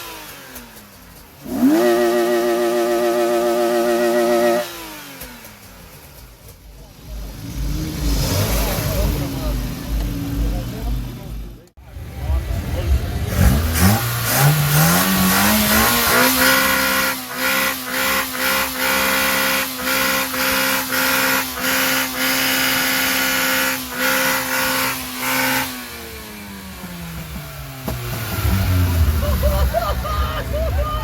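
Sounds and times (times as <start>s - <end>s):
exhaust pops and crackles: 0.0s - 2.6s, 5.2s - 10.9s, 26.8s - 31.0s
car engine revving: 0.0s - 31.0s.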